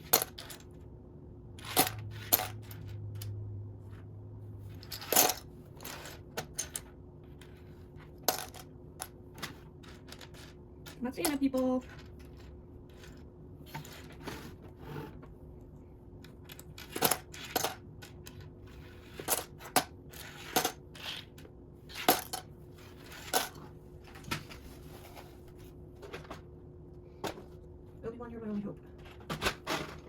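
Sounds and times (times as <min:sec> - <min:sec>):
plastic bricks clacking and rattling: 0:08.2 - 0:13.1.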